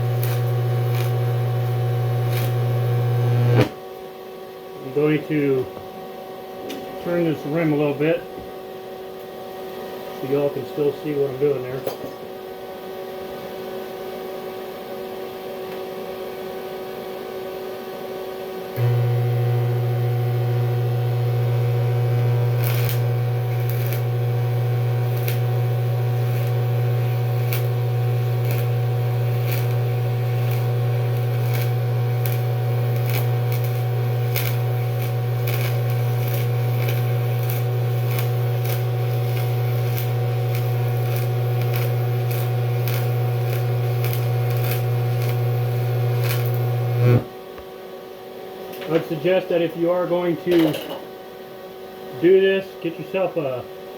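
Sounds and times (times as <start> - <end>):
welder humming: 0.0 - 3.8, 18.6 - 47.4
welding arc crackling and popping: 0.0 - 3.8, 18.8 - 47.3.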